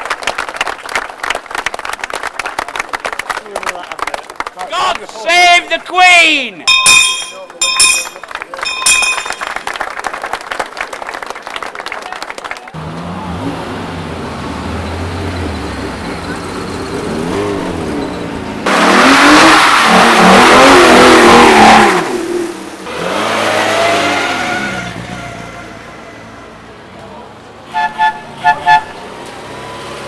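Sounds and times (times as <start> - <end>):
rally car engines revving: 12.8 - 30.0.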